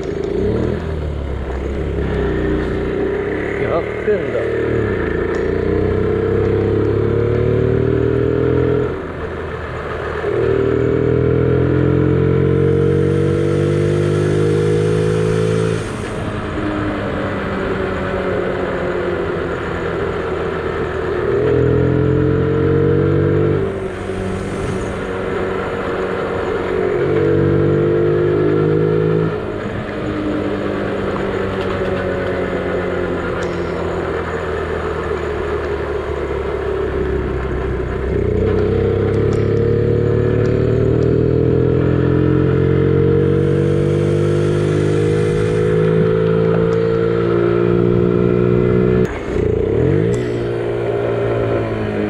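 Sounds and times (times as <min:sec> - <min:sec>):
wind and road noise: 0:00.0 - 0:52.0
small motorbike engine revving: 0:10.8 - 0:16.2, 0:30.6 - 0:52.0.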